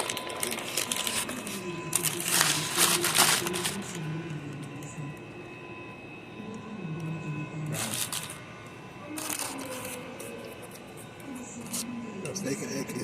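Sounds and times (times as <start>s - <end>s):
paper wrapper rustling: 0.0s - 4.0s, 7.8s - 8.4s
faint pitched hum: 0.5s - 13.0s.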